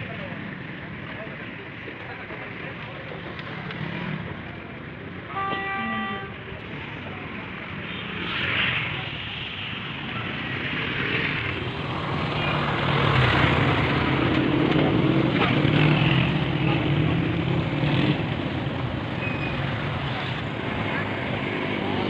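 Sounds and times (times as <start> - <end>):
road traffic passing: 0.0 - 22.0
vehicle horn: 5.3 - 6.4.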